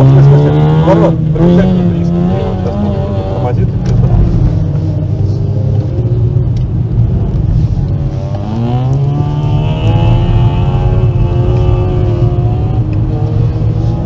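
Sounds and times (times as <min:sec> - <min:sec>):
car engine from inside cabin: 0:00.0 - 0:14.0
low road rumble: 0:00.0 - 0:14.0.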